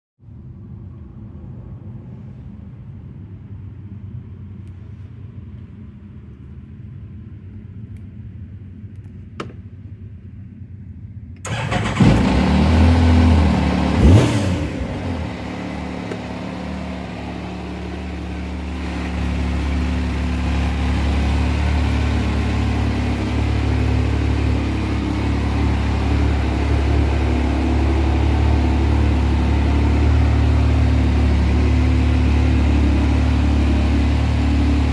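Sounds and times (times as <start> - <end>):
engine starting and idling: 11.4 - 34.9.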